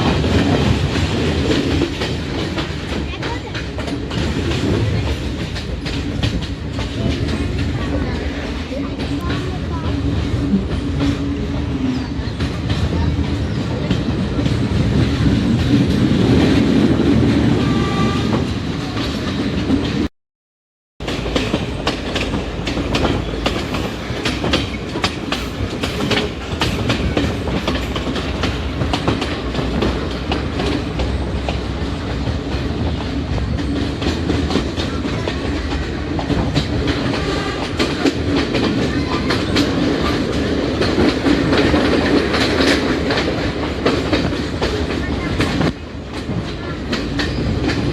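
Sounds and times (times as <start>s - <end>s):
rail joints clicking and clattering: 0.0s - 20.1s, 21.0s - 47.9s
train wheels rumbling on rails: 0.0s - 20.1s, 21.0s - 47.9s.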